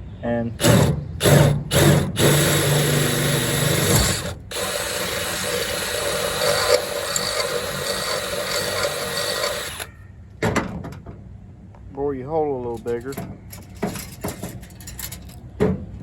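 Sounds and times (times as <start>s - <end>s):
power drill boring a hole: 0.6s - 9.9s.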